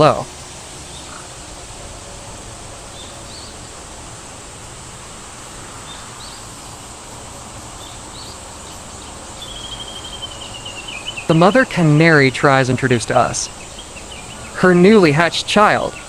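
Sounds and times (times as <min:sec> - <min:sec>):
steady background hiss: 0:00.0 - 0:16.0
small bird chirping: 0:00.8 - 0:01.4, 0:02.9 - 0:03.8, 0:05.8 - 0:16.0.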